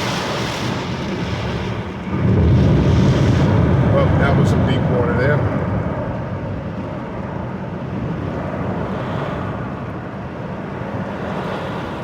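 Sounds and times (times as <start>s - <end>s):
rain on car: 0.0s - 8.8s
tyres on wet road: 0.0s - 12.0s
wind on car: 0.0s - 12.0s.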